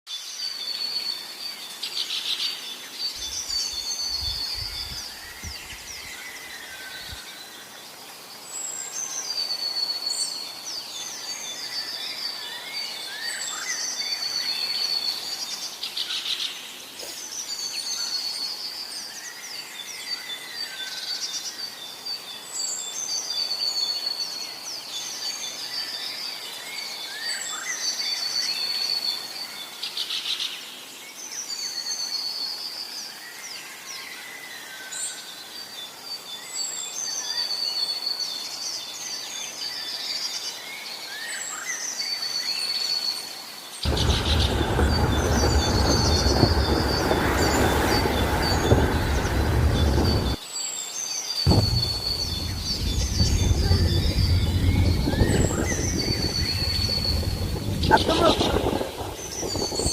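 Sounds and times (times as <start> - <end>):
songbirds singing and calling: 0.1 - 59.9
low rumble: 43.9 - 50.4, 51.5 - 59.9.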